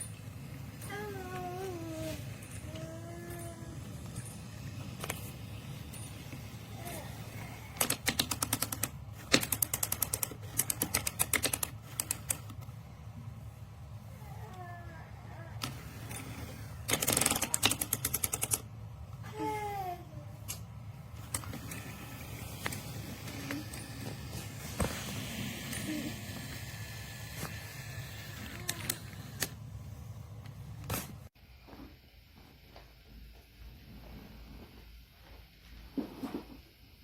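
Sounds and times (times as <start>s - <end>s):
toy train rapid clicking: 0.9s - 12.6s, 15.6s - 18.7s, 21.2s - 29.6s.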